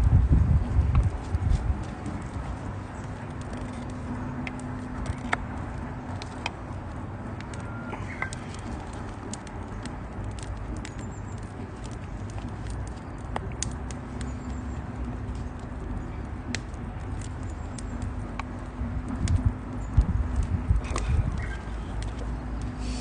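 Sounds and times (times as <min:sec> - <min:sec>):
low rumble: 0:00.0 - 0:01.8
campfire crackling and popping: 0:00.0 - 0:23.0.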